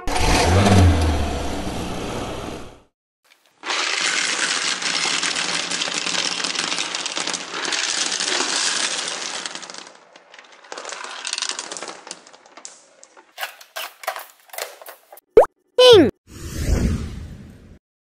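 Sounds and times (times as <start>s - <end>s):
plastic beads pouring and rattling: 3.6s - 13.1s.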